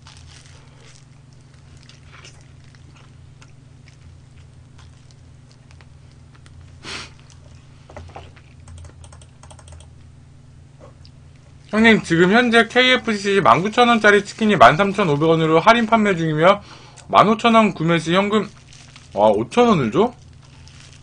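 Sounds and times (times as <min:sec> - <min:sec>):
chewing and crunching food: 0:00.0 - 0:09.4, 0:10.8 - 0:17.1, 0:18.1 - 0:21.0
low steady hum: 0:00.0 - 0:21.0
small clicks: 0:08.6 - 0:09.9.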